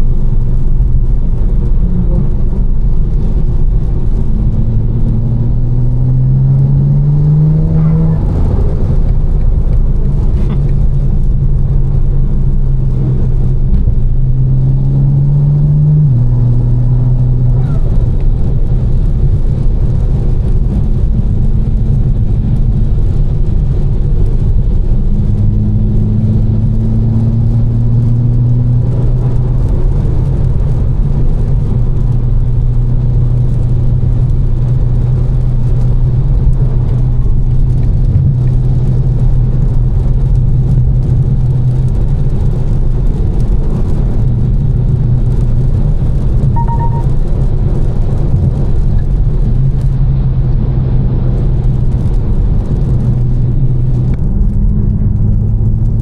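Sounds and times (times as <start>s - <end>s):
car engine drone: 0.0s - 56.0s
road and tyre rumble: 0.0s - 56.0s
brief beep: 46.6s - 47.2s.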